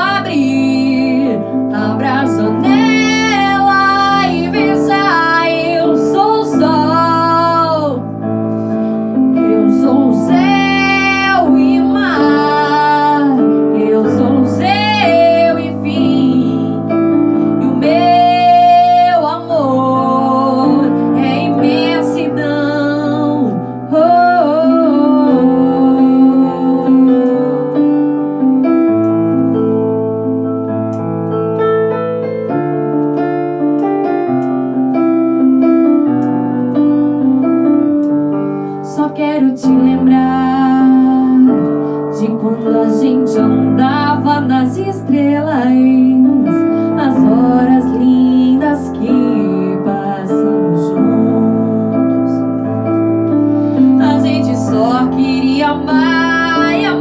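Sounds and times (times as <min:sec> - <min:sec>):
woman singing a ballad: 0:00.0 - 0:08.2, 0:09.1 - 0:28.2, 0:38.7 - 0:57.0
piano accompaniment: 0:00.0 - 0:57.0.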